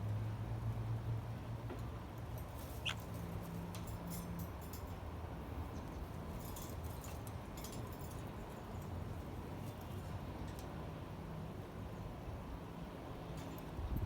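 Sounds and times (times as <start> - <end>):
parrot squeak: 2.8 - 3.0.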